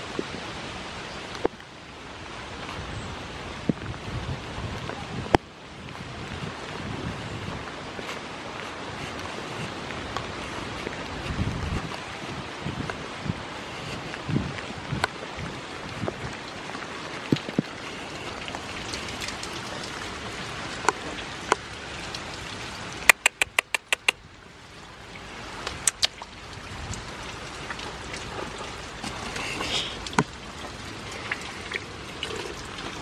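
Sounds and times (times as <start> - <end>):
steady rain: 0.0 - 33.0
sharp drop ticks: 23.1 - 24.2.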